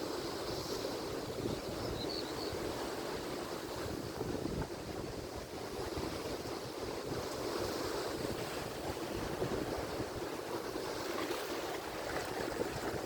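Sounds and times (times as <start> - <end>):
waves breaking on shore: 0.0 - 13.0
wind buffeting microphone: 3.6 - 13.0.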